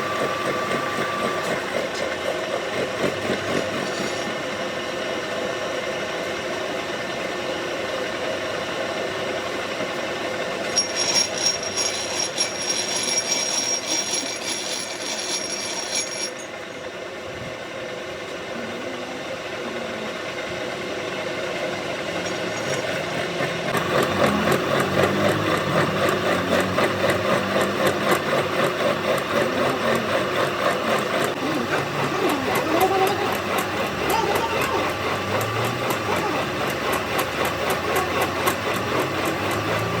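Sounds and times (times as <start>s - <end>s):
machinery motor hum: 0.0s - 40.0s
high ringing whine: 10.1s - 17.2s.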